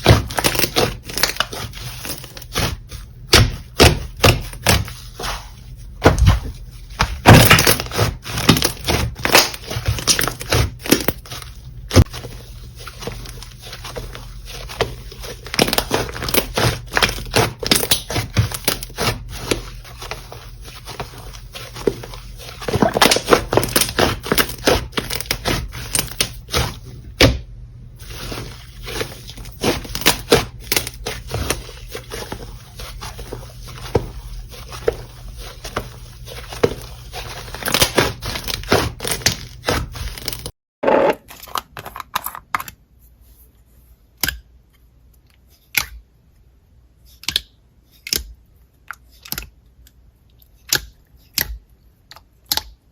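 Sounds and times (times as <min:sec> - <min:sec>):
slime crackling and popping: 0:14.4 - 0:26.7.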